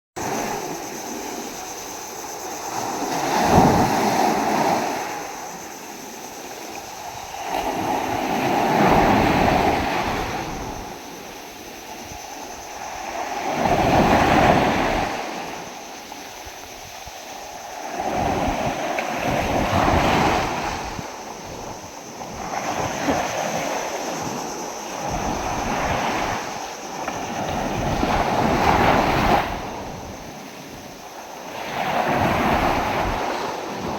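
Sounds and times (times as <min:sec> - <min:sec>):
storm waves breaking: 0:17.9 - 0:33.9.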